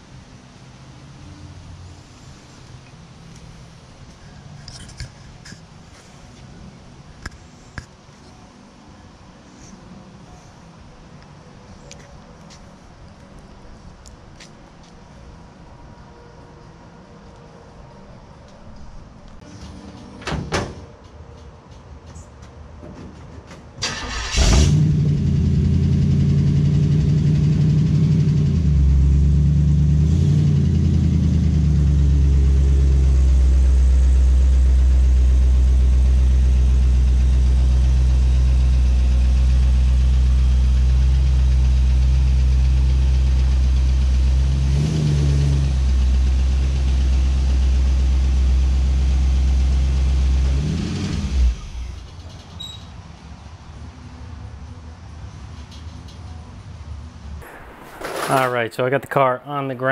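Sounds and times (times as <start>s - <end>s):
car engine starting and idling: 23.8s - 52.3s
engine revving: 23.9s - 52.0s.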